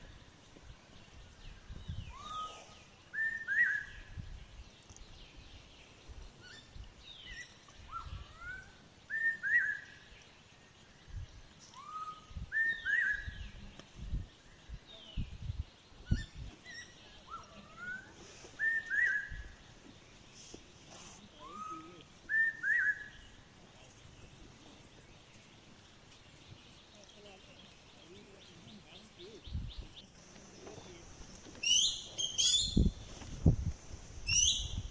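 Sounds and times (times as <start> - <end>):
songbird whistling: 1.9 - 4.1, 7.3 - 10.0, 11.7 - 13.5, 16.1 - 19.6, 21.4 - 23.4, 31.6 - 33.0, 34.2 - 34.9.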